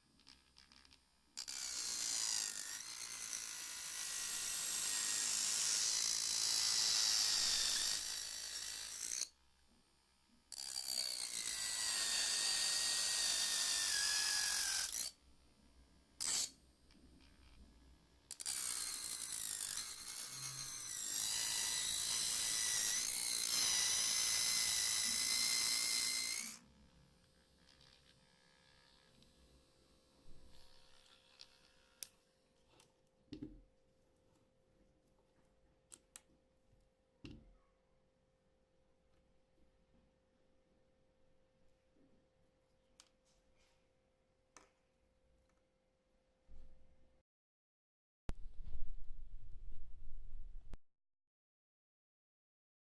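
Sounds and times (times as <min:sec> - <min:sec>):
small electric motor whining: 0:00.2 - 0:09.3, 0:10.6 - 0:15.1, 0:16.2 - 0:16.6, 0:18.3 - 0:29.2, 0:30.3 - 0:32.1.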